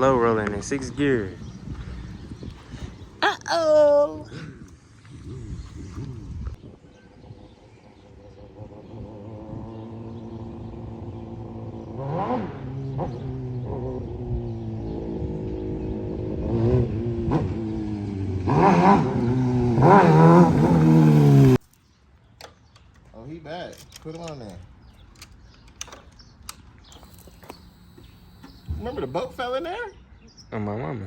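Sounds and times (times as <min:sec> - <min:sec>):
motorcycle engine revving: 0:07.3 - 0:21.6, 0:24.9 - 0:29.8.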